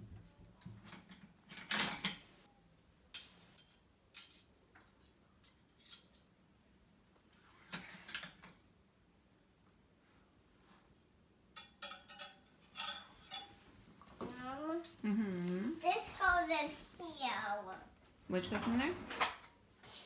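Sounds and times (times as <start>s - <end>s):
cutlery and dishes clattering: 0.6s - 2.3s, 3.1s - 6.4s, 7.6s - 8.6s, 11.5s - 15.1s.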